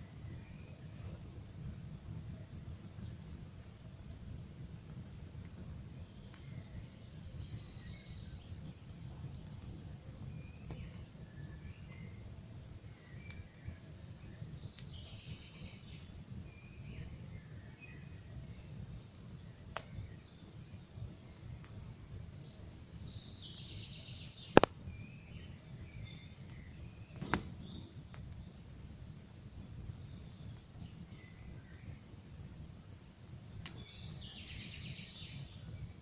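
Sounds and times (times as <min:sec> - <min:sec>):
songbirds chirping: 0:00.0 - 0:36.0
campfire crackling pops: 0:04.0 - 0:07.5, 0:08.2 - 0:16.2, 0:18.9 - 0:20.8, 0:21.5 - 0:23.0, 0:24.5 - 0:25.0, 0:26.3 - 0:31.2, 0:33.5 - 0:34.3.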